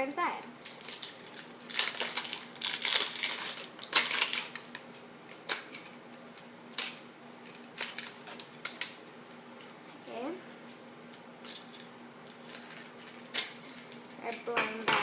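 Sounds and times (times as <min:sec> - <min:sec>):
packaging crinkling: 0:00.6 - 0:09.0, 0:11.4 - 0:14.1.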